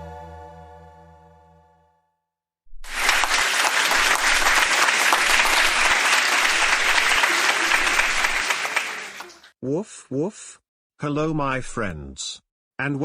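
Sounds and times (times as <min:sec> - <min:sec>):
audience applause: 0:02.8 - 0:09.5.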